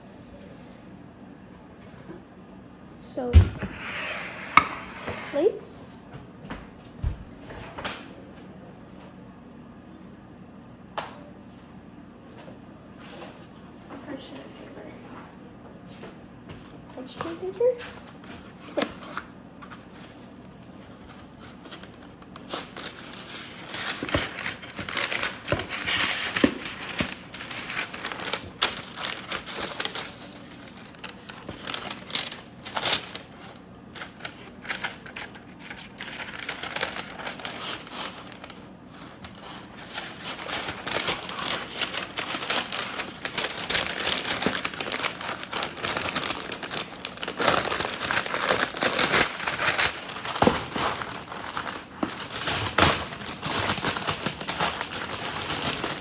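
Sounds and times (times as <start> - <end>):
parchment paper crinkling: 17.2 - 56.0.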